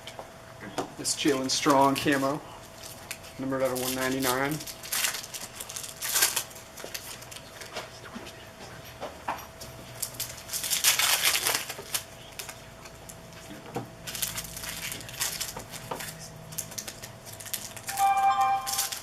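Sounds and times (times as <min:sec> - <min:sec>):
card pack wrappers tearing: 0:01.8 - 0:07.7, 0:10.0 - 0:13.0, 0:14.0 - 0:19.0.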